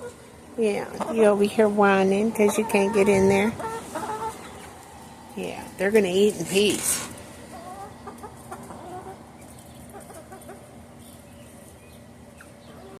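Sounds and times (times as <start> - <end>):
faint steady hum: 0.0 - 13.0
chickens clucking softly: 2.3 - 5.3, 7.4 - 13.0.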